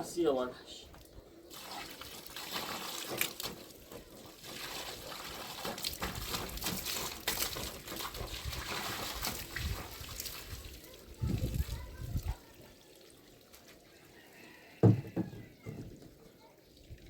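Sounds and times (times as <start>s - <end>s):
water trickling and splashing: 0.0s - 17.0s
short splashes or knocks: 1.5s - 10.5s.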